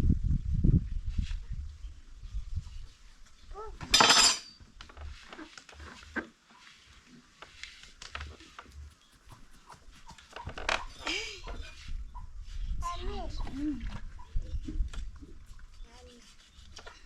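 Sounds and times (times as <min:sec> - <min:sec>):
metal pots clinking and knocking: 0:03.8 - 0:04.5.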